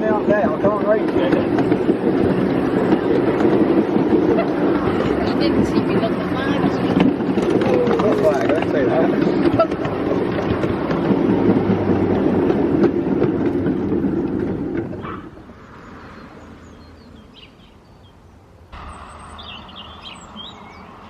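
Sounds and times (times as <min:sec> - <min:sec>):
wheels clicking over rail joints: 0:00.0 - 0:17.1
miniature train rumbling on track: 0:00.0 - 0:17.9, 0:18.7 - 0:21.0
faint bird chirps: 0:18.8 - 0:21.0.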